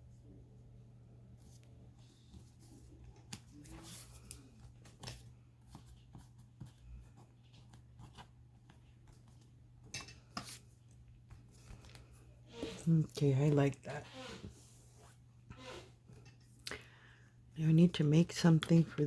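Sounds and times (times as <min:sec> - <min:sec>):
paper and card rustling: 0:01.4 - 0:09.5.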